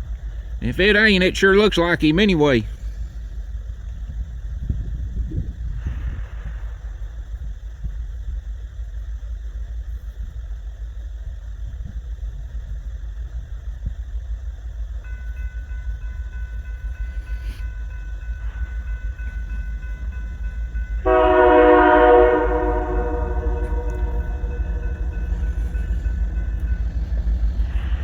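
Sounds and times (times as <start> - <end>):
low steady rumble: 0.0 - 28.0
locomotive air horn: 0.6 - 2.7, 16.3 - 28.0.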